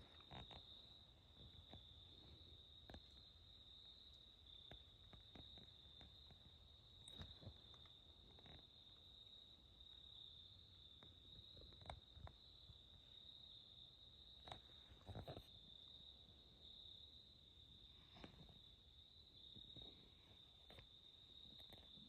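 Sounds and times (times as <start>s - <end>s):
soft clicks and rustles: 0.0s - 9.2s, 14.3s - 15.6s, 19.5s - 22.0s
insect chorus: 0.0s - 22.0s.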